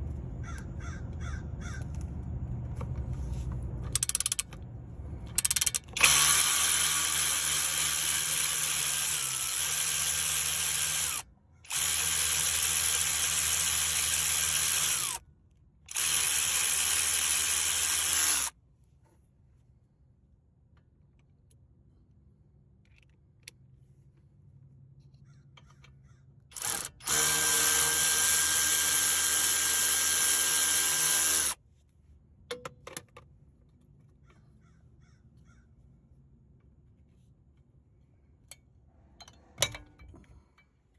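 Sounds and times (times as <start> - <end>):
handheld power tool running: 5.4 - 15.2, 15.9 - 18.5, 26.6 - 31.6.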